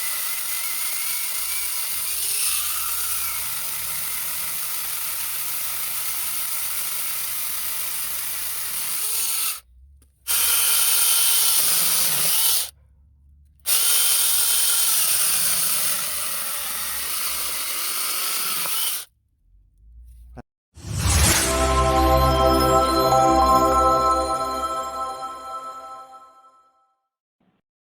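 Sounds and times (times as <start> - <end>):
battery chainsaw whining: 13.7 - 19.1.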